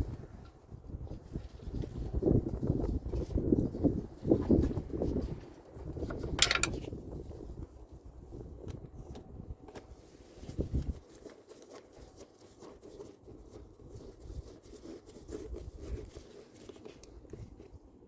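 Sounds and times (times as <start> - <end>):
faint clicks and rustling: 14.6 - 17.8.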